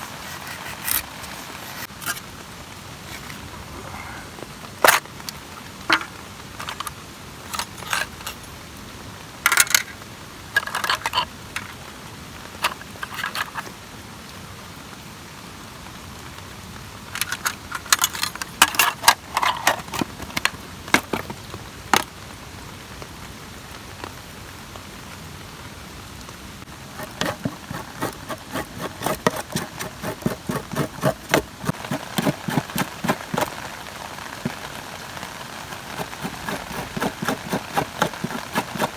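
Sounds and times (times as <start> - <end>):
rain hiss: 33.5 - 36.0.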